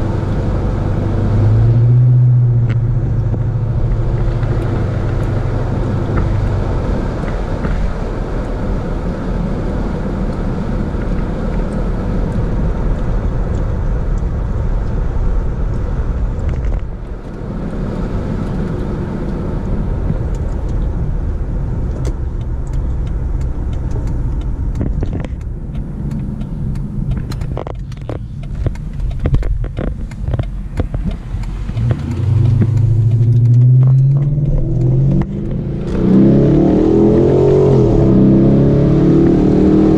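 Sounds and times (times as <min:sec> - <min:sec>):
car engine and road rumble: 0:00.0 - 0:39.9
car engine revving: 0:00.0 - 0:39.9
sharp clicks and knocks: 0:11.0 - 0:36.2.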